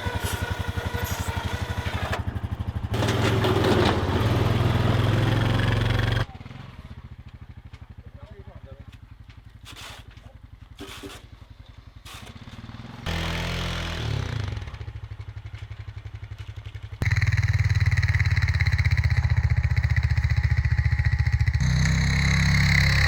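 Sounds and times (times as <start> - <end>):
snowplow engine running: 0.0 - 6.3, 16.4 - 23.0.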